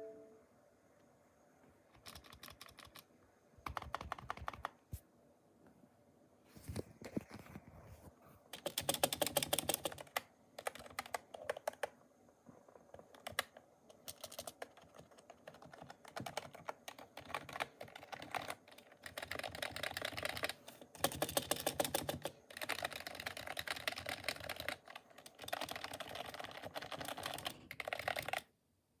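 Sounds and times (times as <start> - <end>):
mechanical keyboard typing: 1.9 - 4.8, 8.5 - 12.0, 12.7 - 28.5.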